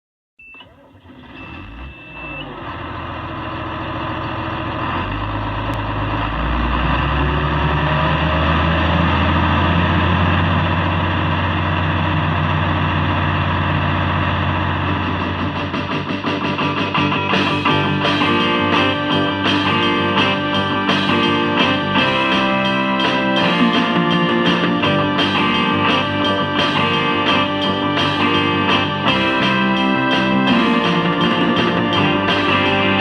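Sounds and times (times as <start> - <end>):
combine harvester engine revving: 0.9 - 16.4
high warning tone: 16.8 - 33.0.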